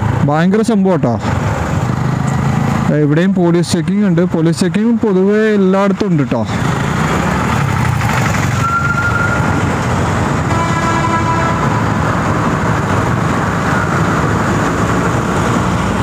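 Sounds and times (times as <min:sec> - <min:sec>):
road and wind noise: 0:00.0 - 0:16.0
motorcycle engine: 0:01.2 - 0:03.2, 0:06.4 - 0:16.0
vehicle horn: 0:10.4 - 0:12.0.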